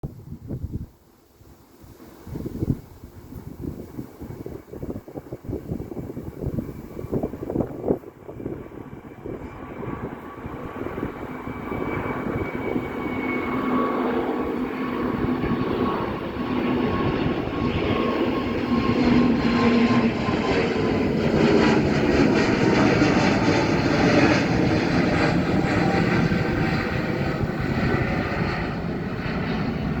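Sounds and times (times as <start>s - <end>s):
jet engine whine: 0.1s - 30.0s
jet engine roar: 1.3s - 30.0s.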